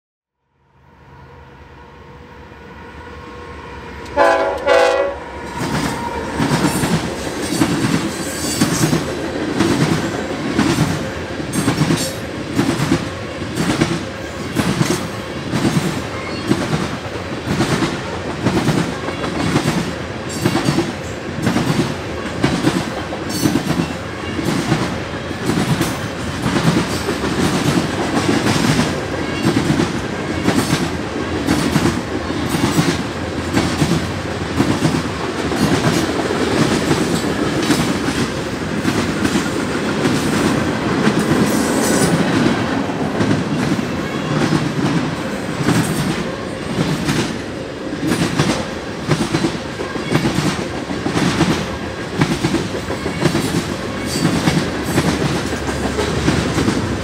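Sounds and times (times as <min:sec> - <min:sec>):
locomotive horn blast: 0:00.9 - 0:06.9
train wheels clickety-clack: 0:05.5 - 0:57.0.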